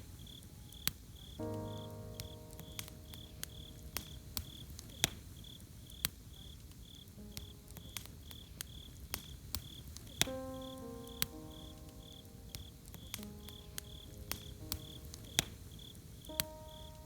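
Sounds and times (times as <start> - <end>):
campfire crackling and popping: 0.0 - 17.0
cricket chirping: 0.0 - 17.0
soft music chord: 1.4 - 4.9, 10.3 - 17.0.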